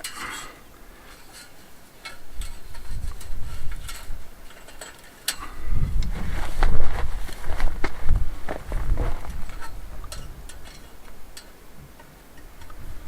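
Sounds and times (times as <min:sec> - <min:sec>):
low rumbling bumps: 0:05.6 - 0:10.6.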